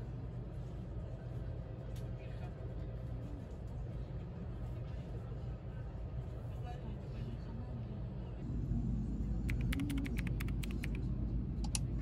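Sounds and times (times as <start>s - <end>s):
sharp clicks: 9.5s - 11.0s.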